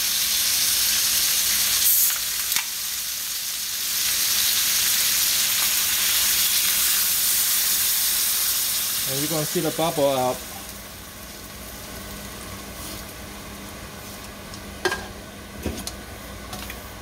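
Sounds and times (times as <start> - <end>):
food sizzling in hot oil: 0.0 - 15.5
soda can opening: 1.8 - 2.7.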